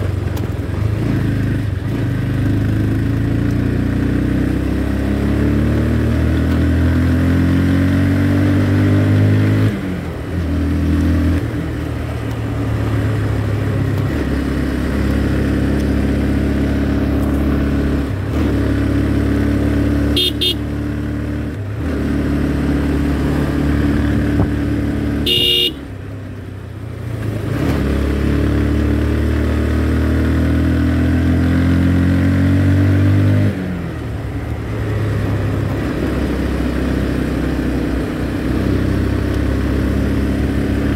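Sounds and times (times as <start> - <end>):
motorcycle engine revving through gears: 0.0 - 40.9
vehicle horn beeping: 20.1 - 20.7, 25.2 - 25.9.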